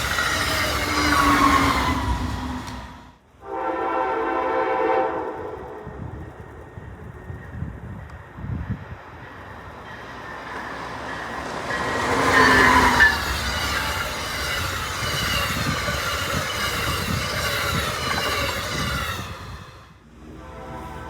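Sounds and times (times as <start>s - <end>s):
train wheels squealing: 0.0s - 3.2s, 9.2s - 20.0s
passenger train rumble: 0.0s - 21.0s.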